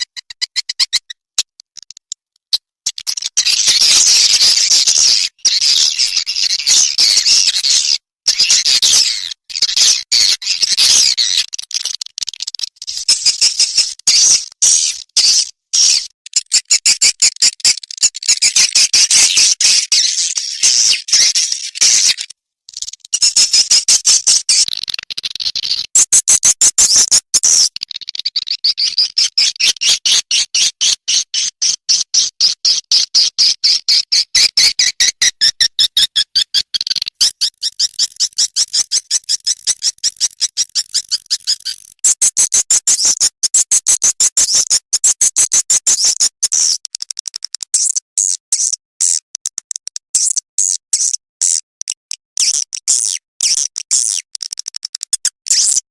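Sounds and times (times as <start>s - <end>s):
high twittering bird chirps: 0.0s - 2.1s, 2.8s - 43.3s.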